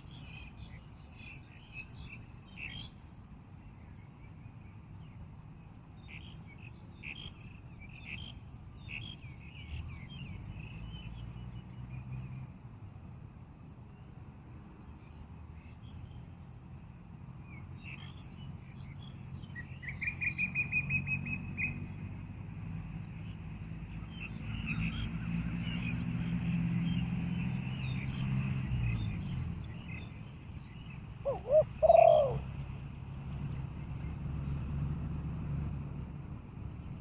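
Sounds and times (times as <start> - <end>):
small birds chirping: 23.0 - 32.5
dove cooing: 31.2 - 32.5.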